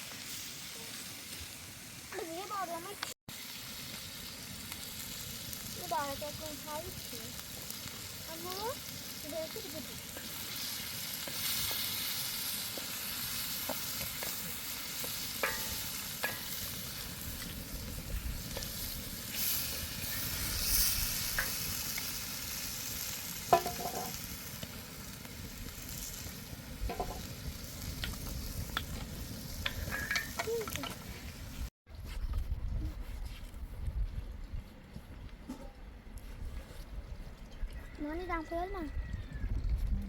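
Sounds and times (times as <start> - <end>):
food sizzling in a pan: 0.0 - 31.6
utensil knocking in pan: 23.5 - 24.1, 26.9 - 27.2.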